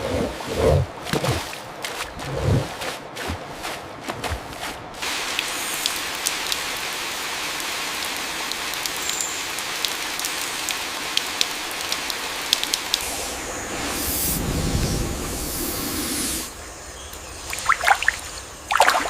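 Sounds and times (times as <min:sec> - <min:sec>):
rain hissing: 0:05.0 - 0:19.0
sharp rain drop ticks: 0:05.3 - 0:13.3.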